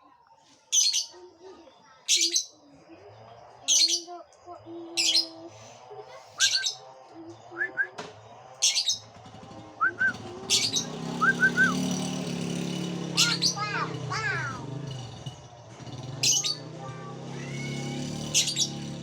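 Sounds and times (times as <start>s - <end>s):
bird harsh shrill calls: 6.4s - 6.8s, 8.6s - 9.2s, 10.0s - 14.6s, 17.4s - 18.9s
bird rising chirps: 8.6s - 14.5s.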